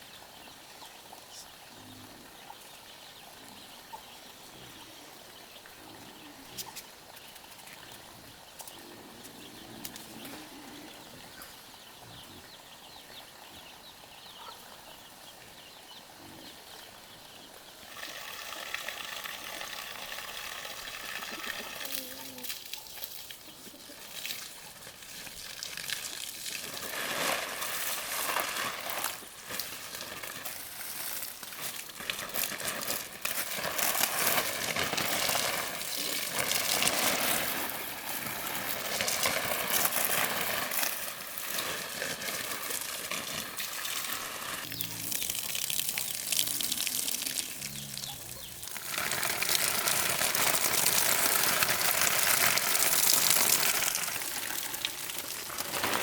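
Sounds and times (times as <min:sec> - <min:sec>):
water running and splashing: 0:17.9 - 0:56.0.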